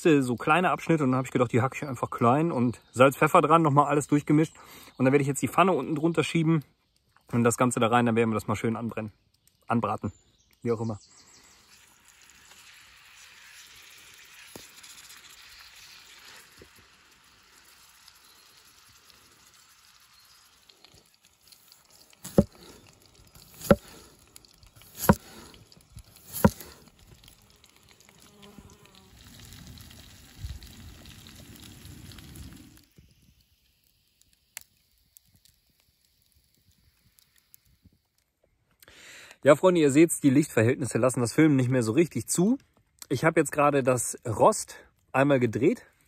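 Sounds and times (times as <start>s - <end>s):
meat sizzling in a pan: 11.5s - 38.0s.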